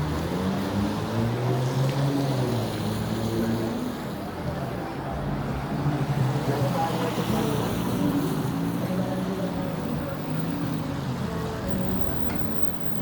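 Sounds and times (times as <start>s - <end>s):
traffic on a wet road: 0.0s - 13.0s
people talking: 4.2s - 8.2s.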